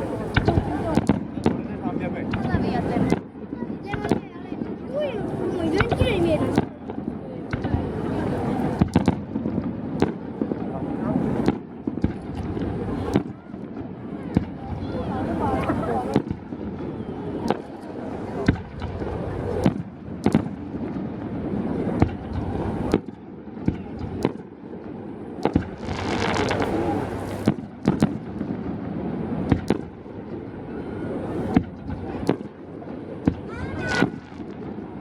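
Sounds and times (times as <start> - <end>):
fireworks bangs: 0.0 - 35.0
murmur of crowd voices: 0.0 - 35.0
firework hiss: 25.4 - 28.6, 33.4 - 34.9.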